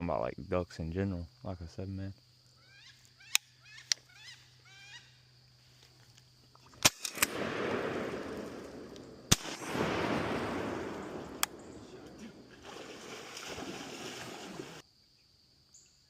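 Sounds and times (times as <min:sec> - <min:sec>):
shotgun blasts: 0:06.8 - 0:12.7.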